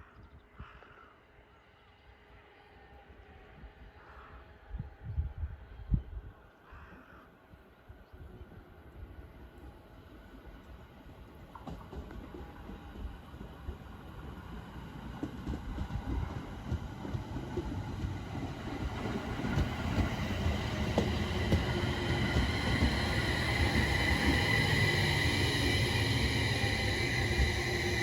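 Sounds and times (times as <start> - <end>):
train wheels rumbling on rails: 10.3 - 28.0.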